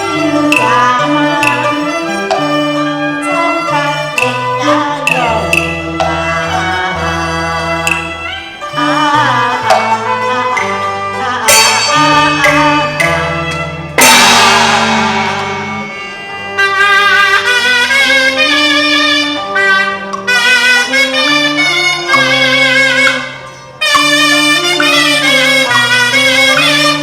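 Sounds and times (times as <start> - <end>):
opera accompaniment band: 0.0 - 27.0
loud percussion crash: 11.5 - 17.0.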